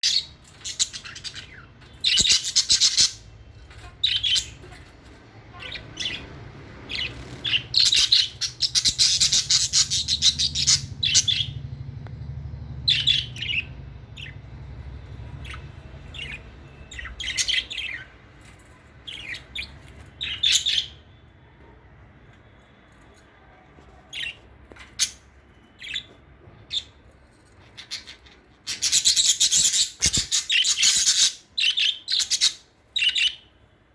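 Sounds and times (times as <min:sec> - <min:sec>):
budgerigars twittering: 0:00.0 - 0:04.9, 0:05.5 - 0:11.7, 0:12.8 - 0:18.2, 0:27.6 - 0:33.5
faint low hum: 0:00.1 - 0:30.3.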